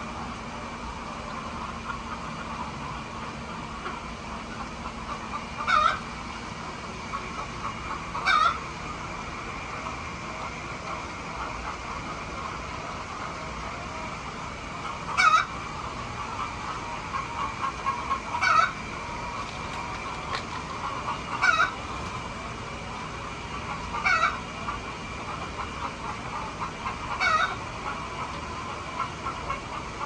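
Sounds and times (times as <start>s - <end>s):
chickens clucking: 1.0s - 30.0s.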